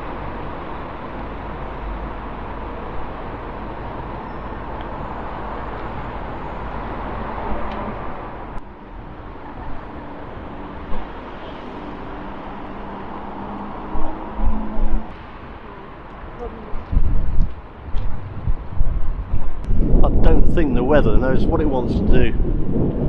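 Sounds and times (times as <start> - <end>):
road traffic passing: 0.0 - 20.0
wind buffeting microphone: 0.0 - 23.0.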